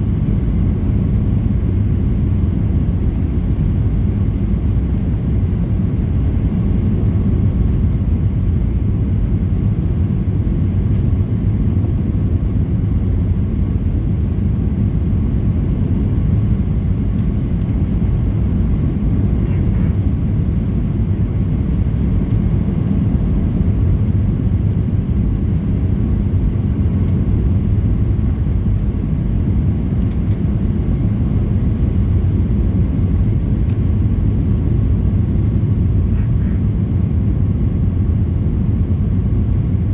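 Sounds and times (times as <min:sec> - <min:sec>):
airplane cabin engine rumble: 0:00.0 - 0:39.9
faint constant hum: 0:00.0 - 0:39.9.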